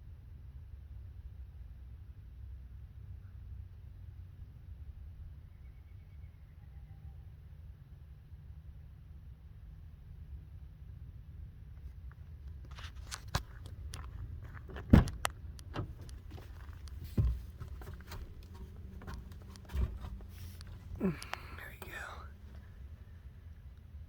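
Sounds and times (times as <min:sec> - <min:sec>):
sharp knocks and clicks: 0:14.7 - 0:21.4.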